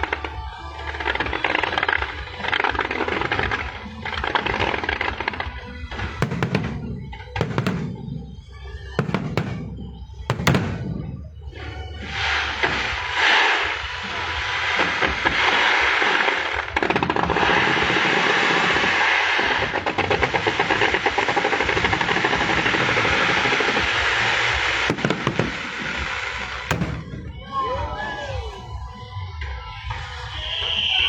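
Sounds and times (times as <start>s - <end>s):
fireworks crackling: 0.0s - 28.8s
loud firework bangs: 2.0s - 11.3s, 12.0s - 27.6s.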